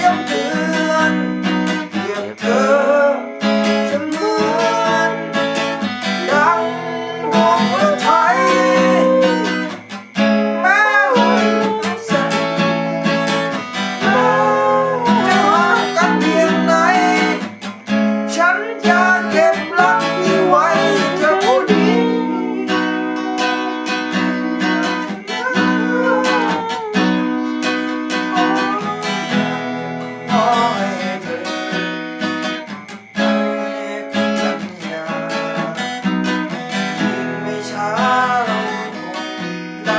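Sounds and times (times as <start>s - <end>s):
strummed acoustic guitar chords: 0.0s - 39.9s
sliding melody line: 6.2s - 9.8s, 10.6s - 17.6s, 18.4s - 32.8s.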